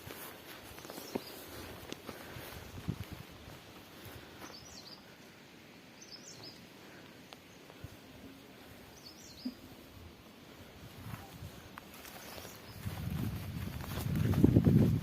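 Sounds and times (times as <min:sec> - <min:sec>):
small bird chirping: 0:06.0 - 0:06.6, 0:08.9 - 0:09.7.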